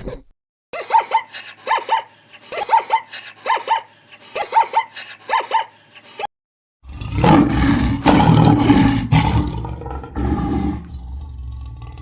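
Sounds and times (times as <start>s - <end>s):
big cat roaring: 6.8s - 12.0s.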